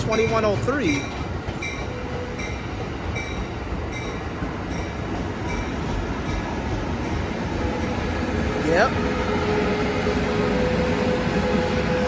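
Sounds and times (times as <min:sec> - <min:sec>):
train bell striking: 0:00.0 - 0:08.0
train wheels rumbling on rails: 0:00.0 - 0:12.0.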